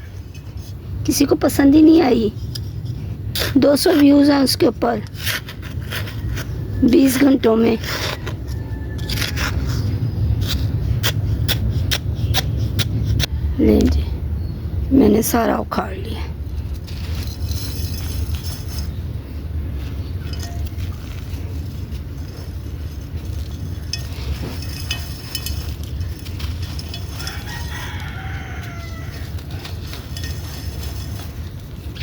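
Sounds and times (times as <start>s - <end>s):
steady low rumble: 0.0s - 32.0s
rooster crowing: 8.2s - 9.8s, 27.0s - 29.8s.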